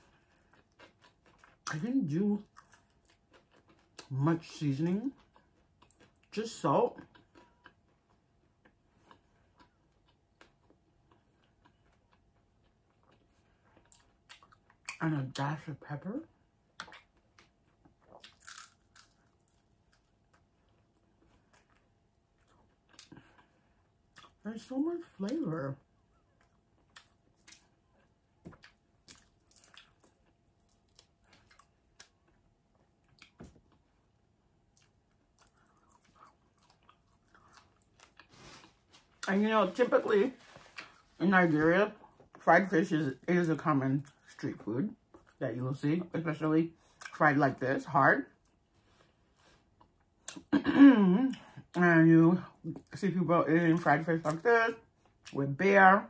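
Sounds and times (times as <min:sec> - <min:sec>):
quiet chewing and mouth clicks: 0:00.0 - 0:01.8, 0:02.4 - 0:04.2, 0:05.0 - 0:15.0, 0:16.6 - 0:24.4, 0:25.8 - 0:39.3, 0:40.4 - 0:41.2, 0:48.4 - 0:50.5.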